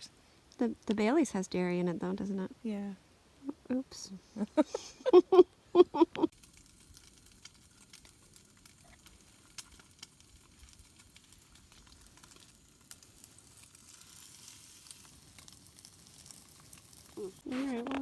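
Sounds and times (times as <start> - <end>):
food sizzling in a pan: 6.3 - 17.6.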